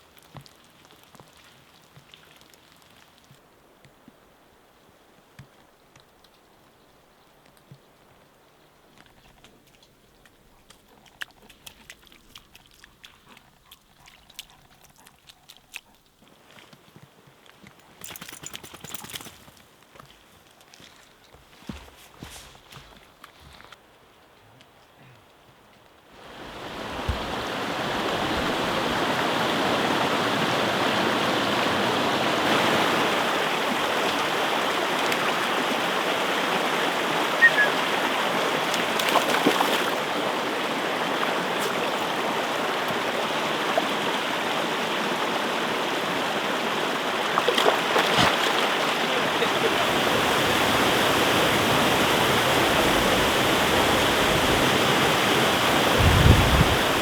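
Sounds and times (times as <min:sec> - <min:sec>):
mountain stream rushing: 0:26.1 - 0:57.0.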